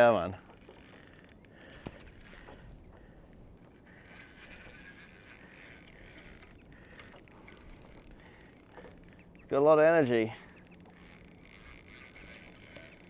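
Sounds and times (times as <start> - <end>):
water and hull noise: 0.0 - 13.0.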